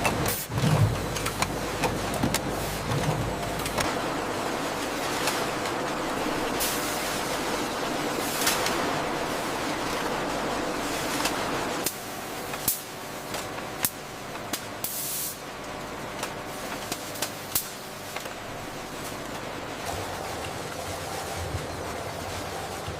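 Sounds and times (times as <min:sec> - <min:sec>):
machinery hum: 0:00.0 - 0:22.9
machinery spraying hiss: 0:14.8 - 0:15.4.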